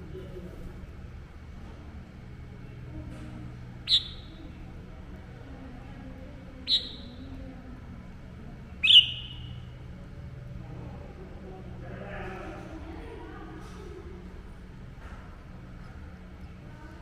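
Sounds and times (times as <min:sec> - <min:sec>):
bird sharp call notes: 0:03.9 - 0:04.4, 0:06.7 - 0:07.2, 0:08.8 - 0:09.6.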